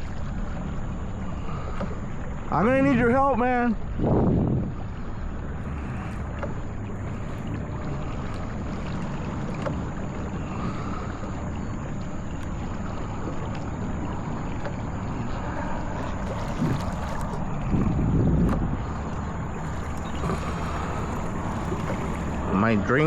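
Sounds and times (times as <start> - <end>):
water moving around kayak: 0.0 - 23.0
wind noise on microphone: 3.8 - 5.1, 15.9 - 22.6.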